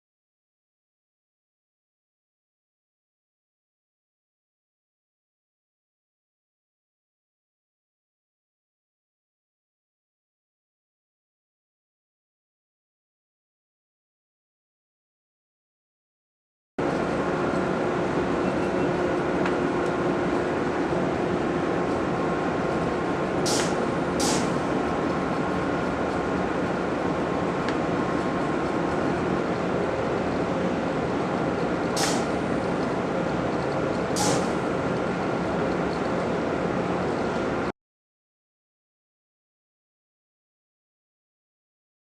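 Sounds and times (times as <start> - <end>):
loud machinery noise: 16.8 - 37.7
sharp air hisses: 23.4 - 24.7, 32.0 - 32.4, 34.2 - 34.7.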